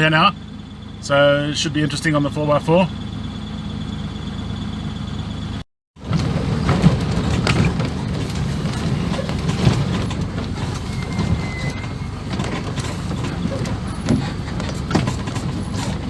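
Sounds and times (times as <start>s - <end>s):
engine running at low speed: 0.0s - 16.0s
vehicle body knocks and rattles: 6.0s - 16.0s.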